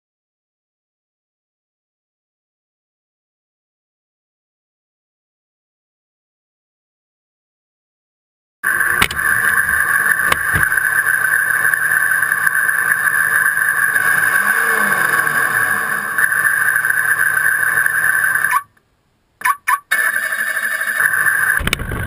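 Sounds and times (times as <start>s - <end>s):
truck engine and road noise: 8.6s - 22.0s.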